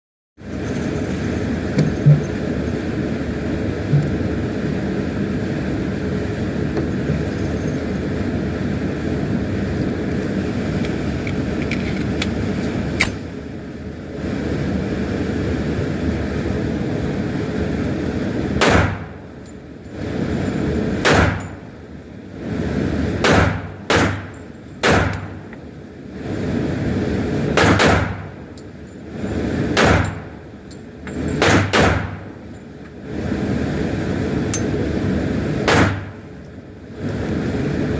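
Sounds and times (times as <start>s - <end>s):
steady rushing noise: 0.4s - 37.9s
handgun shots: 18.6s - 19.0s, 21.0s - 21.5s, 23.2s - 25.3s, 27.6s - 28.2s, 29.8s - 30.2s, 31.4s - 32.2s, 35.7s - 36.1s.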